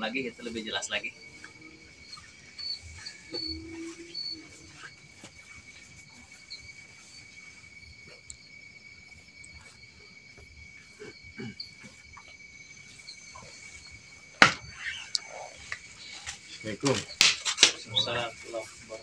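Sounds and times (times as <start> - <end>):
insects trilling: 0.0 - 19.0
sharp knock: 14.4 - 14.7.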